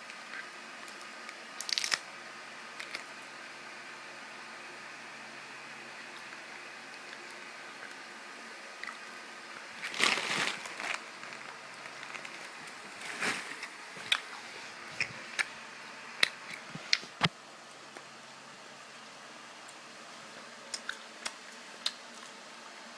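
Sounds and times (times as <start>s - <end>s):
candy wrapper crinkling: 1.6s - 2.0s, 9.8s - 14.2s.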